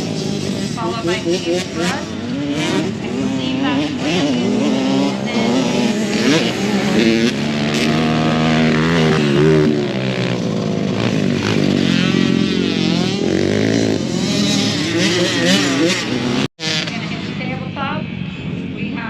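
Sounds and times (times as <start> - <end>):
atv engines revving: 0.0 - 19.0.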